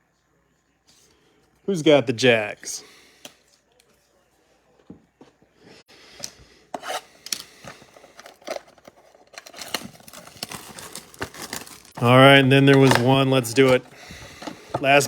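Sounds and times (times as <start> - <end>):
cards and packaging rustling: 6.2 - 15.0.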